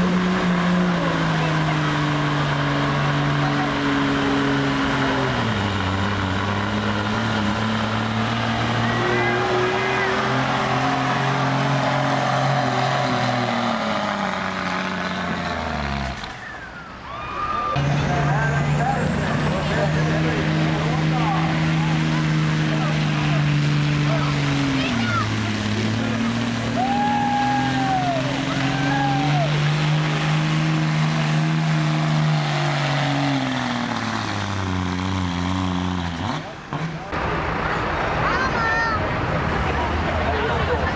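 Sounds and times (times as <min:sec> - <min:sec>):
diesel truck engine under load: 0:00.0 - 0:40.9.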